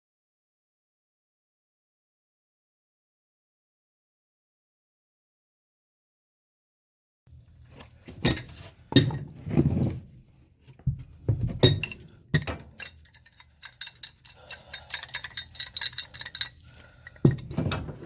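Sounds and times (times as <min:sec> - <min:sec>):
metal pipe fittings clinking: 0:07.8 - 0:09.3, 0:11.6 - 0:18.0.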